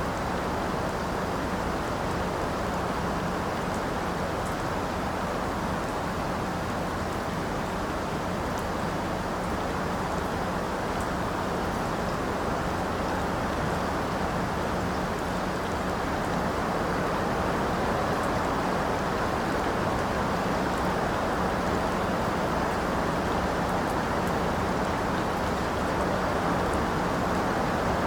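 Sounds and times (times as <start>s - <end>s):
steady rain hiss: 0.0s - 28.0s
faint raindrop ticks: 0.2s - 28.0s.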